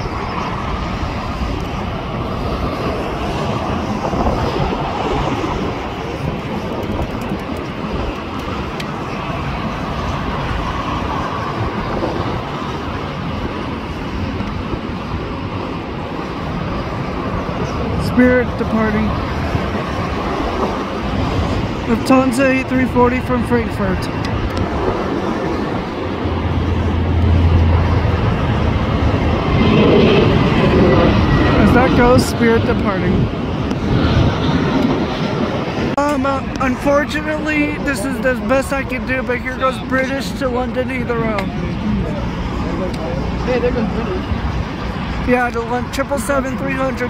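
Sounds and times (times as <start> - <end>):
jet engine rumble: 0.0 - 47.0.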